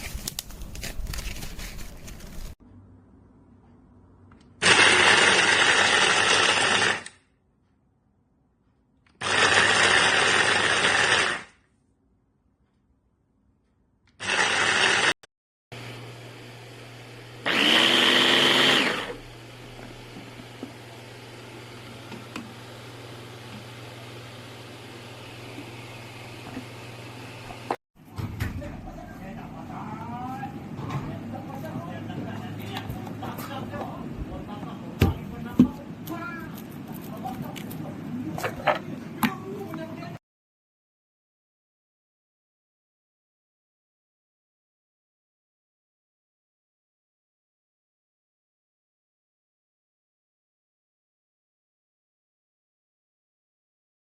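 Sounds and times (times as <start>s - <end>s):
food chopper motor running: 4.6s - 7.1s, 9.2s - 11.5s, 14.2s - 15.2s, 15.8s - 27.8s.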